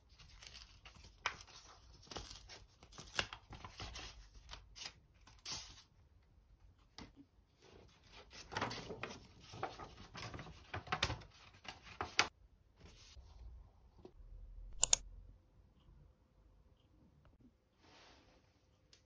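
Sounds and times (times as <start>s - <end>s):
paper rustling and crackling: 0.0s - 5.9s, 7.8s - 13.2s.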